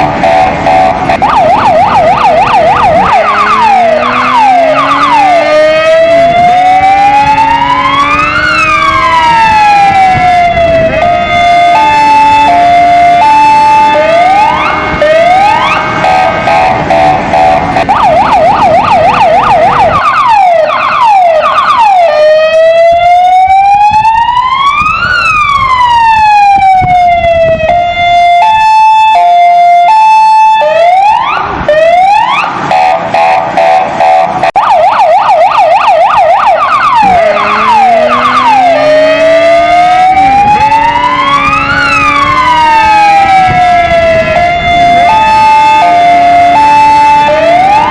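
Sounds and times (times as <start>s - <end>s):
motorcycle engine rumble: 0.0s - 21.9s, 32.6s - 47.9s
electronic siren wailing and yelping: 0.0s - 47.9s.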